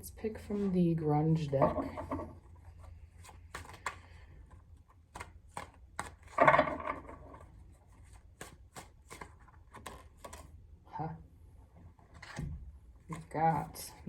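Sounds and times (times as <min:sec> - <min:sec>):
cards rustling: 0:02.4 - 0:06.4, 0:07.4 - 0:10.6
cards snapping and clicking: 0:03.2 - 0:04.3, 0:05.0 - 0:06.4, 0:08.1 - 0:10.5.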